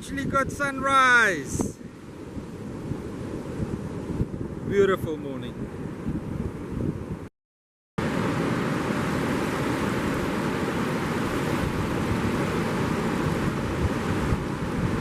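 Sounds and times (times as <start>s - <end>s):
wind rumbling on microphone: 0.0s - 7.3s, 8.0s - 15.0s
surf washing on beach: 0.1s - 6.7s, 8.0s - 15.0s.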